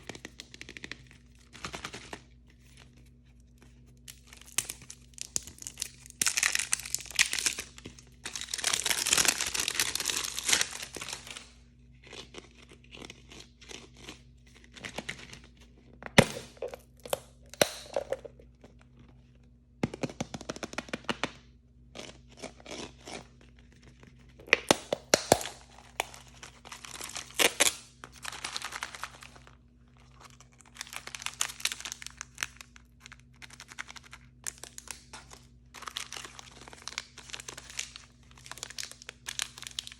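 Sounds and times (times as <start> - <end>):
plastic packaging tearing and crinkling: 4.0 - 11.6, 24.4 - 39.9.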